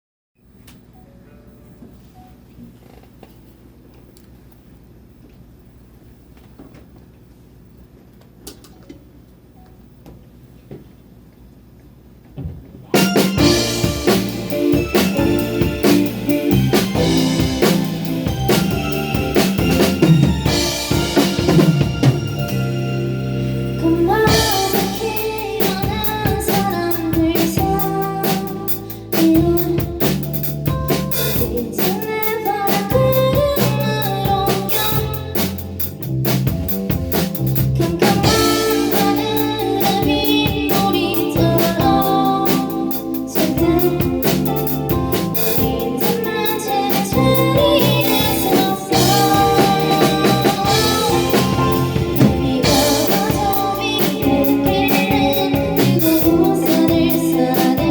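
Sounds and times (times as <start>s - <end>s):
live pop band playing: 12.9s - 57.9s.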